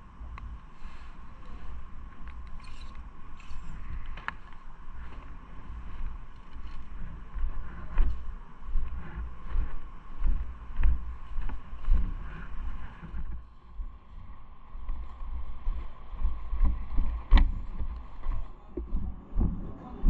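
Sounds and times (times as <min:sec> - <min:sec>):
faint steady hum: 0:00.0 - 0:20.0
wind rumble on microphone: 0:00.0 - 0:20.0.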